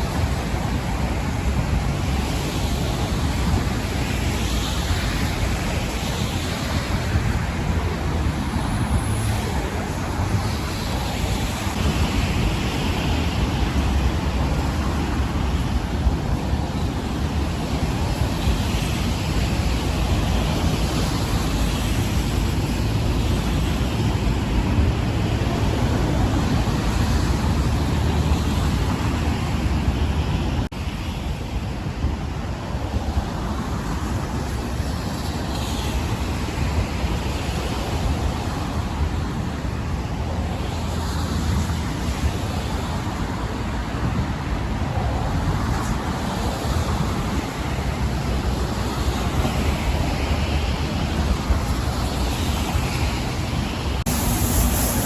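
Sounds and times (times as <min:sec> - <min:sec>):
wind buffeting microphone: 0:00.0 - 0:55.0
car traffic hiss: 0:46.0 - 0:55.0.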